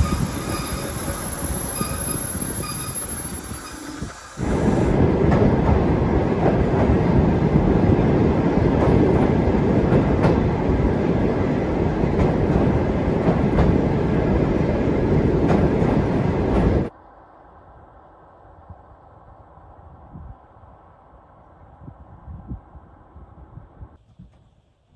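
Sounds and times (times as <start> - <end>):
train wheels rumbling and rattling: 0.0 - 16.9
wheels clacking on rails: 0.0 - 16.9.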